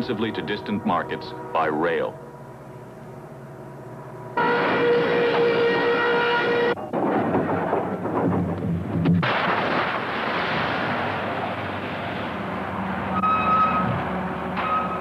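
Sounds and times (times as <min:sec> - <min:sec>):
locomotive horn chord: 0:00.0 - 0:06.8
moving train rumble: 0:00.0 - 0:09.2, 0:11.0 - 0:15.0.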